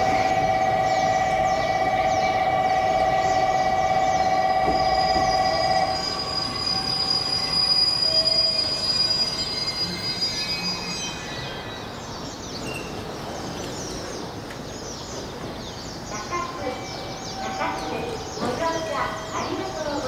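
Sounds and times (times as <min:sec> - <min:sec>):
wheels and brakes squealing: 0:00.0 - 0:14.2
electric train whine: 0:00.0 - 0:20.0
standing trains humming: 0:00.0 - 0:20.0.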